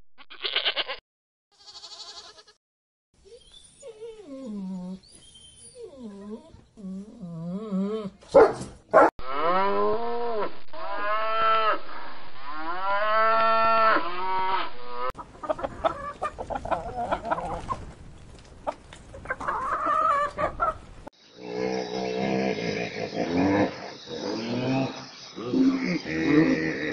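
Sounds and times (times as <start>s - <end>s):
hens clucking: 15.1s - 21.0s.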